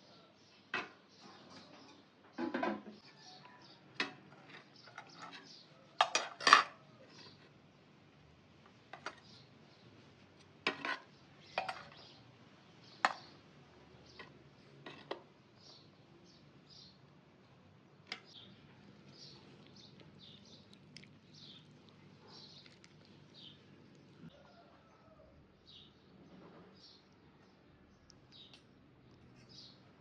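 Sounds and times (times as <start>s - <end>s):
small birds chirping faintly: 6.8s - 30.0s.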